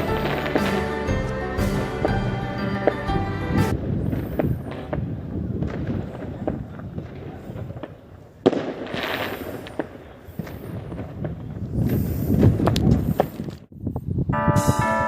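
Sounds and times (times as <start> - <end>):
fireworks bangs and pops: 0.0 - 3.0, 3.7 - 13.6
fireworks crackling hiss: 0.0 - 3.0, 5.8 - 13.5.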